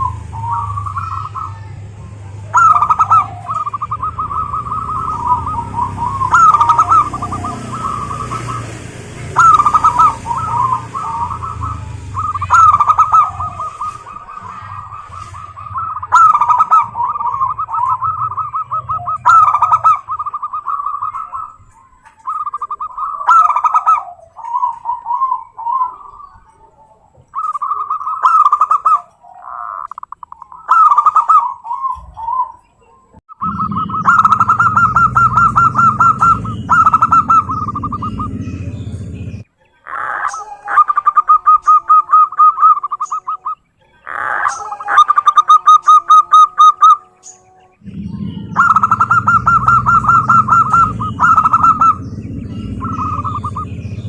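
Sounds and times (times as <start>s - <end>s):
dove cooing: 0.0s - 54.0s
low rumble: 33.4s - 39.5s, 47.8s - 54.0s.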